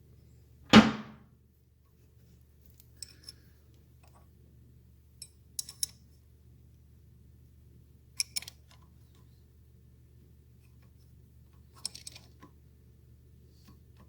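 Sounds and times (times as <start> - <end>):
loud metal clank: 0.7 - 1.2.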